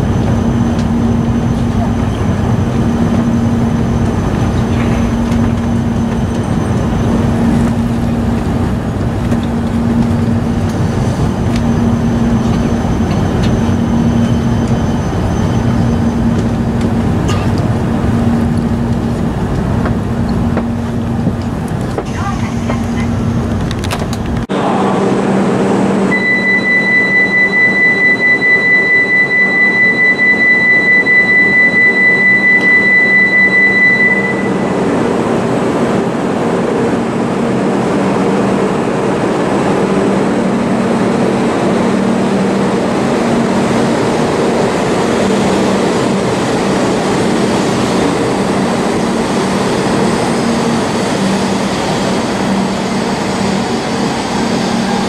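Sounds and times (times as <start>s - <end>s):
train rumble and hum: 0.0s - 55.0s
pulsing high electronic tone: 26.0s - 35.0s.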